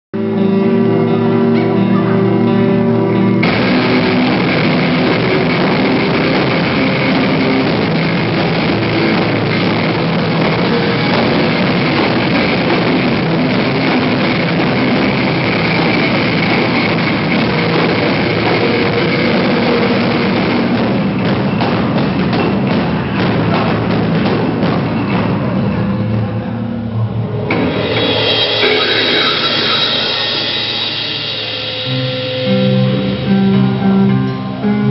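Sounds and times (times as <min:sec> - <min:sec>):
guitar chord ringing: 0:00.2 - 0:21.1, 0:27.2 - 0:34.9
rock band playing loud: 0:00.2 - 0:34.9.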